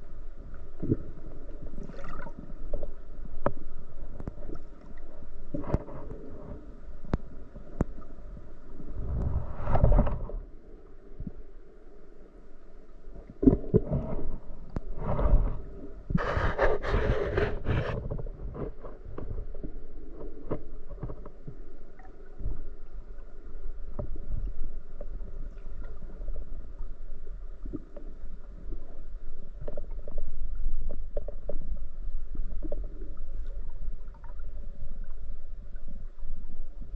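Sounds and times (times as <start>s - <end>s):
muffled underwater sounds: 0.0s - 36.9s.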